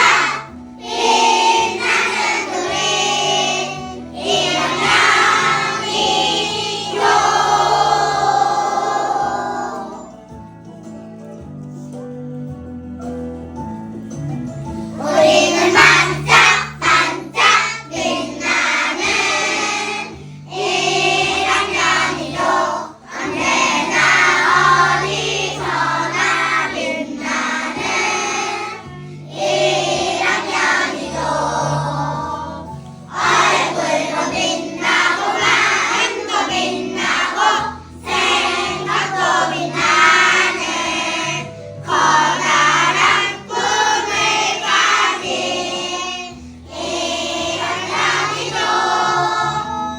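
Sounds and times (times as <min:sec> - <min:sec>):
children's choir singing: 0:00.0 - 0:10.3, 0:15.0 - 0:49.9
instrumental backing track: 0:00.0 - 0:49.9.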